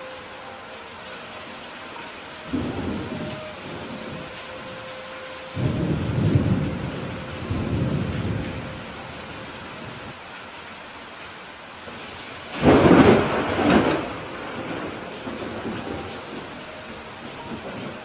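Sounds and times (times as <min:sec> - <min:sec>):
steady rain: 0:00.0 - 0:18.0
thunder rumbling: 0:02.4 - 0:04.9, 0:05.5 - 0:10.2, 0:12.5 - 0:18.0.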